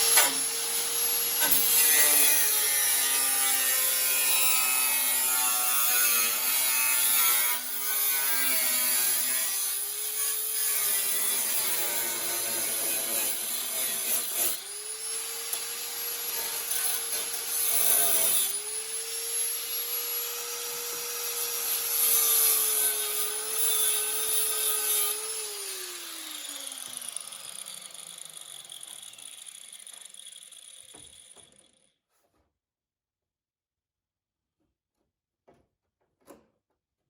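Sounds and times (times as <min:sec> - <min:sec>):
cut-off wheel cutting metal: 0:00.0 - 0:31.9
power tool motor whining down: 0:23.3 - 0:31.8.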